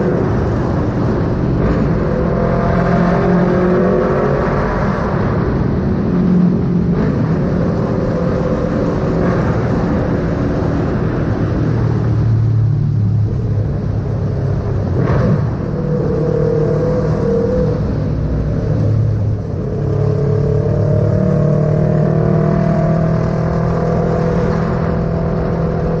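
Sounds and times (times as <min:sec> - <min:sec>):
motorcycle engine revving: 0:14.7 - 0:26.0.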